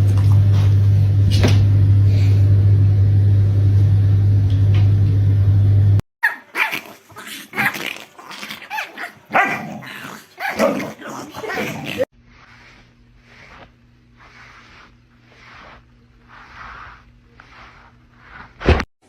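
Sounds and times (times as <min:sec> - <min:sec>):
low mechanical hum: 0:00.0 - 0:06.0
pet whining and yipping: 0:06.2 - 0:12.1.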